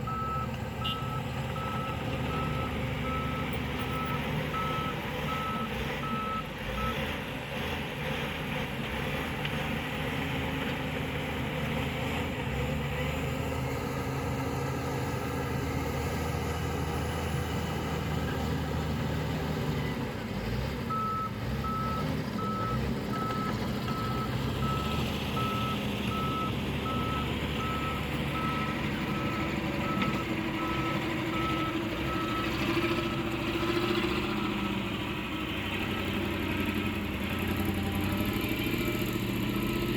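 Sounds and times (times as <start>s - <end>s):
construction vehicle engine running: 0.0s - 39.9s
reversing alarm beeping: 0.1s - 7.0s, 20.9s - 32.6s.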